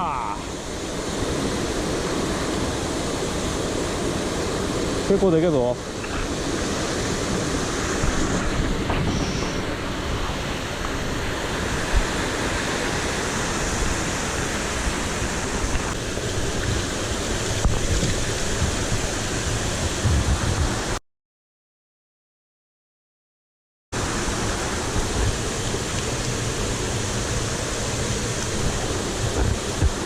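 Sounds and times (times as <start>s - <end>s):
waterfall rushing: 0.0s - 21.0s, 24.0s - 30.0s.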